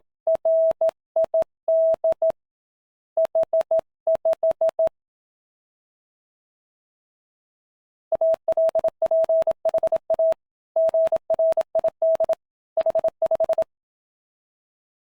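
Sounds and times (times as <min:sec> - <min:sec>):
morse code beeps: 0:08.1 - 0:13.7.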